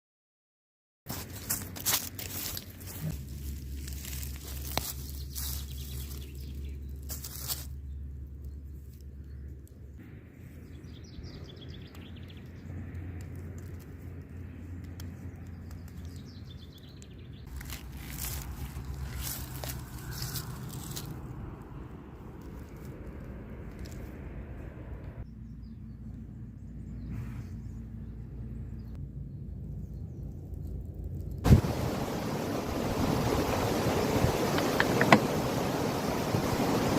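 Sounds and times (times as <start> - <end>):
rustling and crinkling: 1.1 - 7.9, 17.5 - 21.3, 22.2 - 24.2
low steady rumble: 17.3 - 36.9.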